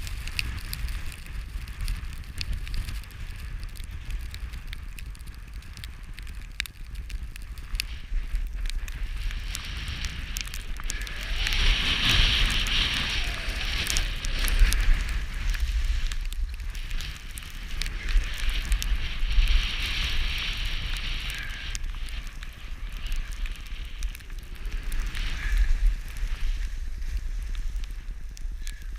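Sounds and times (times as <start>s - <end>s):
wind buffeting microphone: 0.0s - 28.9s
skis hissing over snow: 7.5s - 23.8s, 24.6s - 28.8s.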